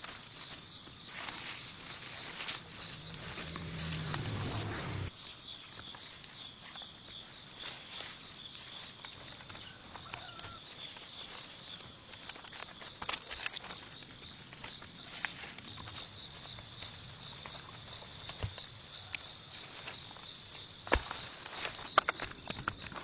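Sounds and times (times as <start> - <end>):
rustles: 0.0 - 5.1
insects chirping: 0.0 - 23.0
footsteps: 1.1 - 5.1.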